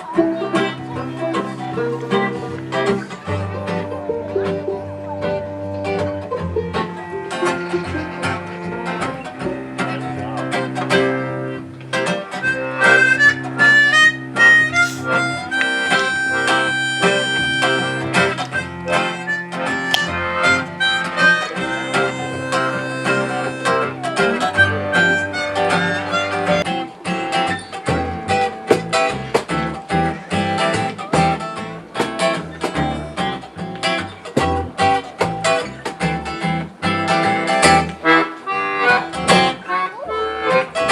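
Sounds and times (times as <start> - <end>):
harmonica lead: 0.0 - 35.7, 36.3 - 40.9
acoustic guitar strumming: 0.0 - 40.9.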